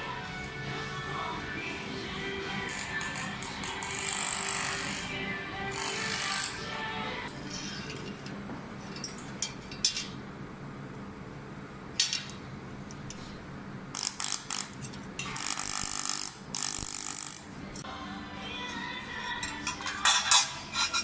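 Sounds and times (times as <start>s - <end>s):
laser welding sizzle: 15.3s - 17.5s.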